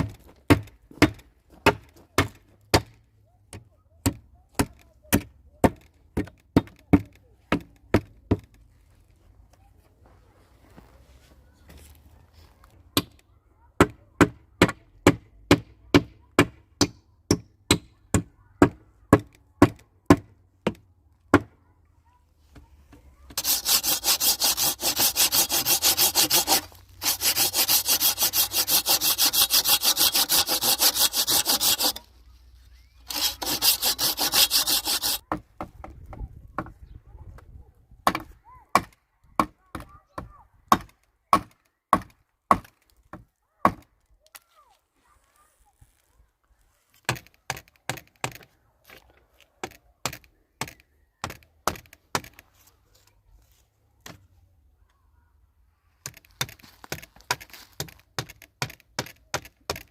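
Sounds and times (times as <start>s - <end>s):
saw cutting through wood: 23.3s - 32.3s, 33.0s - 35.3s.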